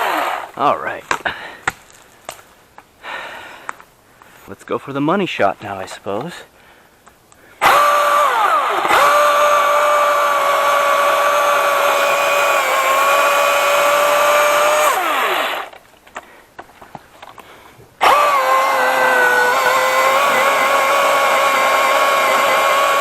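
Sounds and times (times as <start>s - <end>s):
electric chainsaw motor whining: 0.0s - 0.6s, 7.6s - 15.8s, 18.0s - 23.0s.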